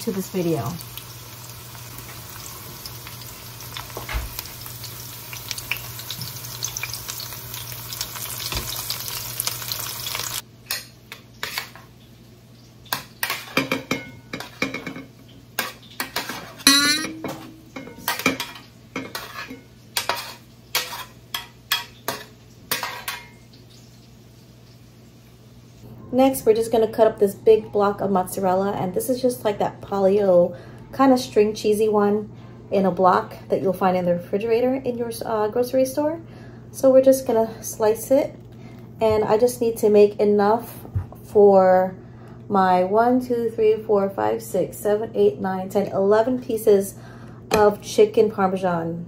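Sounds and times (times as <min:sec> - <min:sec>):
chicken sizzling in a pan: 0:00.0 - 0:10.5
utensils clinking on dishes: 0:12.9 - 0:23.4.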